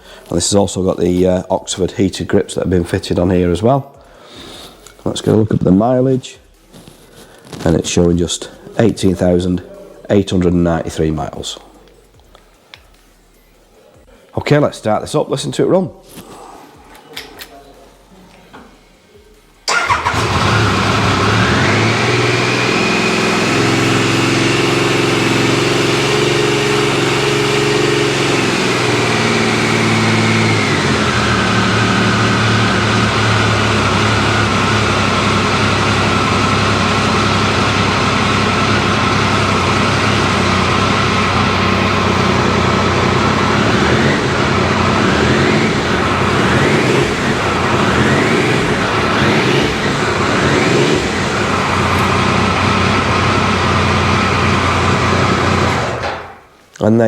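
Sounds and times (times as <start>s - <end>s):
motorcycle engine idling: 19.7s - 55.9s.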